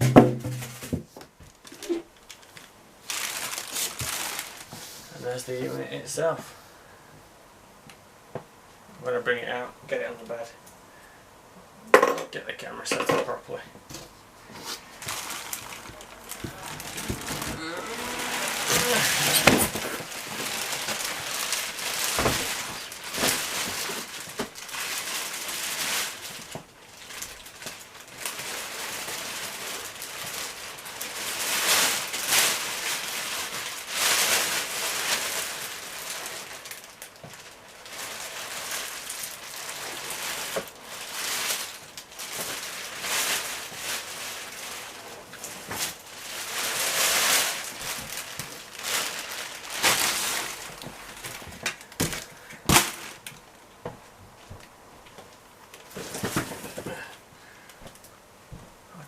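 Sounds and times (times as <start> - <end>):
packaging rustling and crinkling: 0.0 - 5.7, 13.8 - 58.1.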